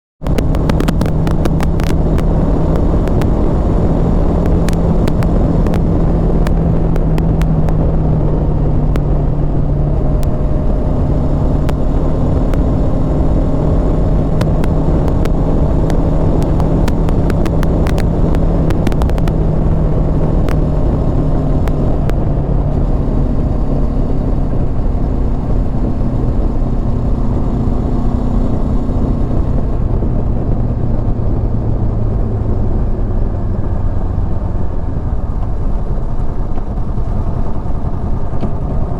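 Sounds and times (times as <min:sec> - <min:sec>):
sharp clicks: 0:00.2 - 0:09.2, 0:09.9 - 0:26.4
motorcycle engine cruising: 0:00.2 - 0:38.9
wind rush on microphone: 0:00.2 - 0:38.9.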